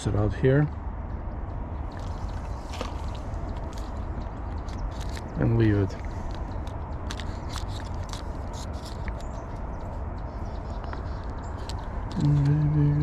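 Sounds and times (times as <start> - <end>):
scattered small clicks: 3.4 - 12.8.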